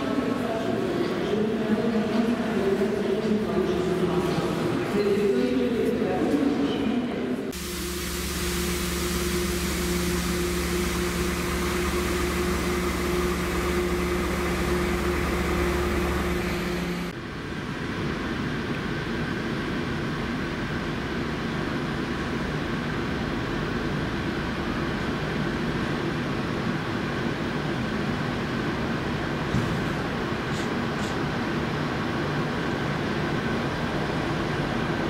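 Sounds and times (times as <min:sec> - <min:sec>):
trains droning at platform: 0:00.0 - 0:35.0
diesel locomotive engine running: 0:07.5 - 0:35.0.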